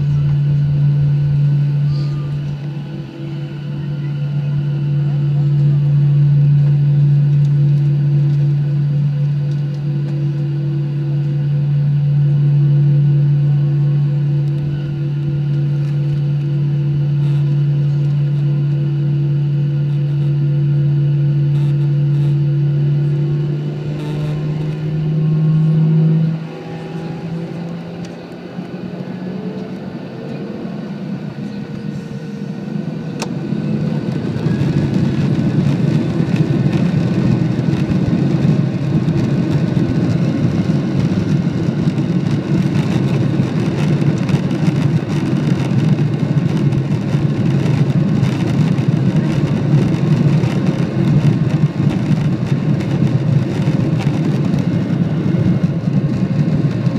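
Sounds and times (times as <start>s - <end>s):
jet engines spooling up: 23.1s - 56.9s.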